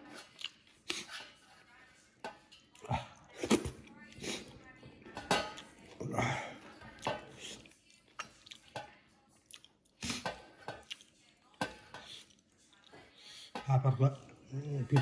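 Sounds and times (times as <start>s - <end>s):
chewing and lip smacks: 0.0s - 1.2s, 6.8s - 13.4s.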